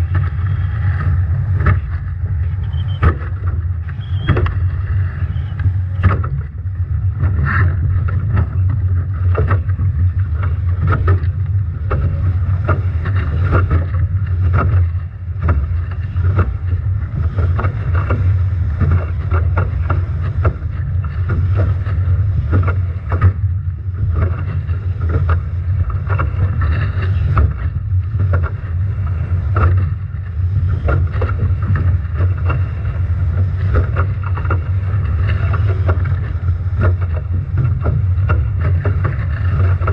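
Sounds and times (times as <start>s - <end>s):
waves slapping and splashing: 0.0s - 39.9s
wind buffeting microphone: 0.0s - 39.9s.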